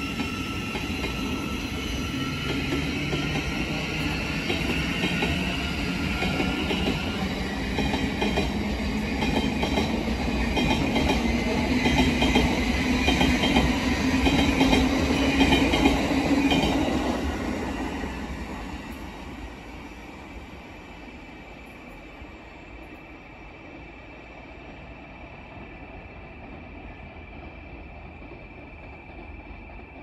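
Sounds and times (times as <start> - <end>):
train wheels rumbling past: 0.0 - 20.3.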